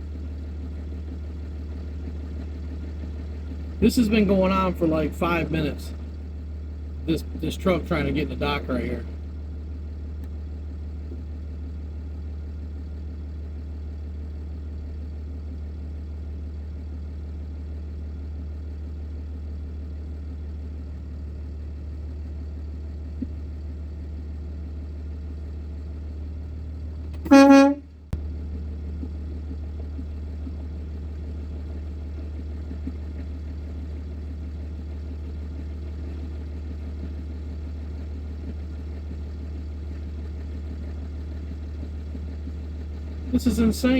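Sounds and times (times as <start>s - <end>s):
truck engine idling: 0.0s - 43.9s
loud horn blast: 27.2s - 27.8s.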